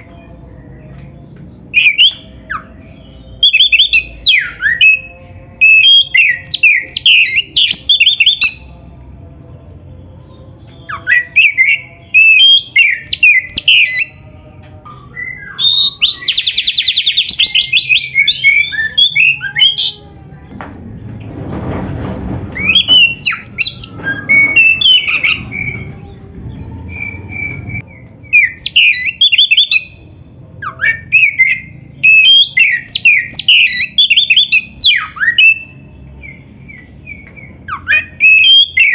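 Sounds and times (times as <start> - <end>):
bird singing whistles and chatter: 0.9 - 14.2, 14.9 - 20.4, 22.6 - 30.0, 30.6 - 38.9.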